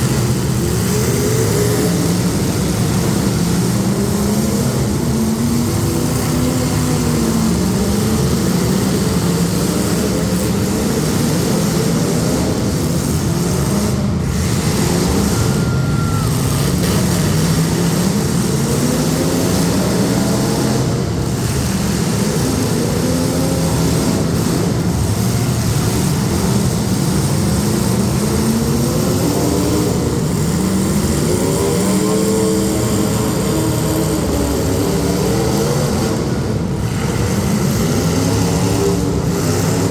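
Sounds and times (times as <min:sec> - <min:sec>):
car engines revving: 0:00.0 - 0:39.9.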